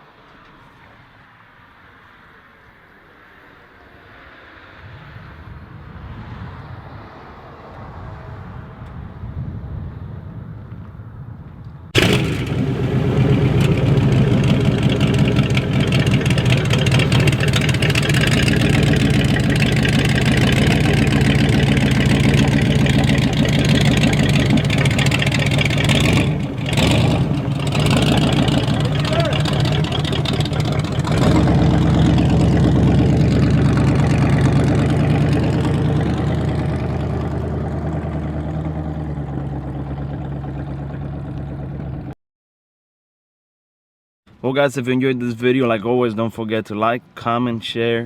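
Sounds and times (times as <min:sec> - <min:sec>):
car engine rumbling: 0:12.0 - 0:42.1.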